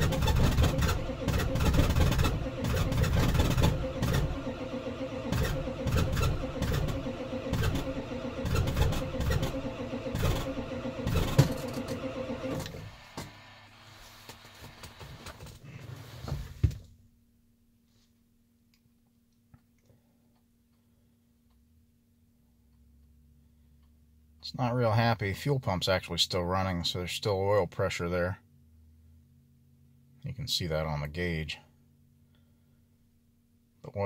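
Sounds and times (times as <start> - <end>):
diesel engine cranking: 0.0 - 13.0.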